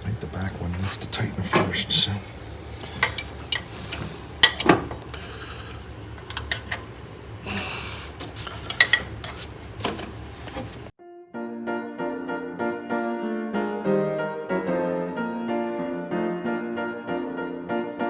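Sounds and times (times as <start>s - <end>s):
hand tools clinking on metal: 2.9s - 5.3s, 6.2s - 6.9s, 8.5s - 9.5s.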